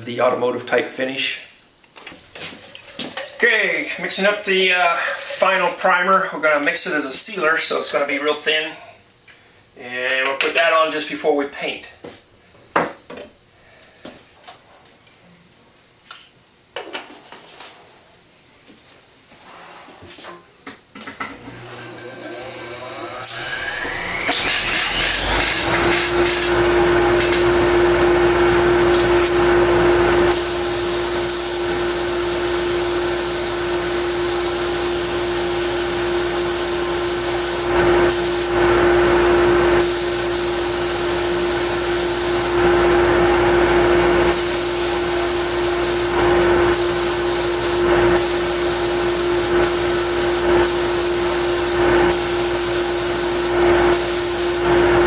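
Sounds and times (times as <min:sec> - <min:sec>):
air compressor motor humming: 0:21.4 - 0:55.0
paint spray gun hissing: 0:28.9 - 0:38.7, 0:39.8 - 0:42.6, 0:44.2 - 0:54.7.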